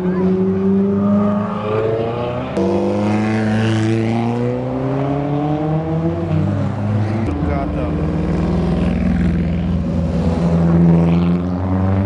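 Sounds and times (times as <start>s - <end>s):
car accelerating: 0.0s - 12.0s
sports car engines passing: 0.0s - 12.0s.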